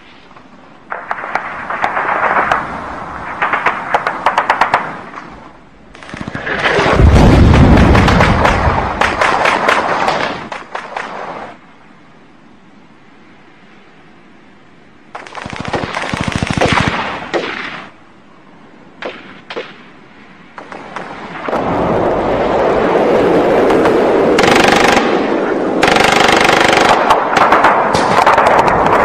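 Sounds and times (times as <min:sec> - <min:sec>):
continuous din of gunfire: 0:03.3 - 0:05.2, 0:05.9 - 0:11.4, 0:15.1 - 0:17.9, 0:23.6 - 0:29.0
machine-gun fire: 0:03.4 - 0:05.0, 0:06.0 - 0:11.3, 0:15.2 - 0:17.9, 0:23.8 - 0:29.0
single gunshots: 0:15.2 - 0:17.9.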